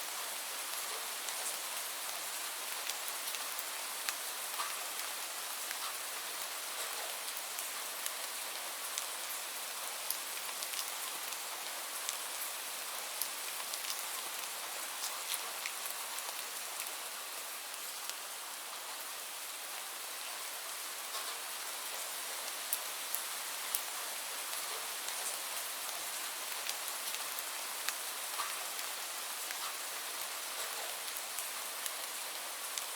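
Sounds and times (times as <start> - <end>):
steady rain hiss: 0.0 - 32.9
raindrops ticking on a surface: 0.1 - 32.9.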